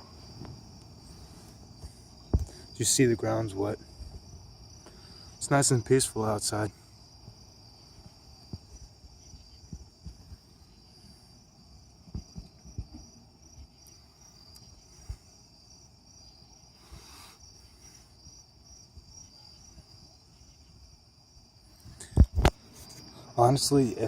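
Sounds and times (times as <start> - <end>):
insects trilling: 0.0 - 24.0
soft low bumps: 7.2 - 11.0, 11.8 - 13.8.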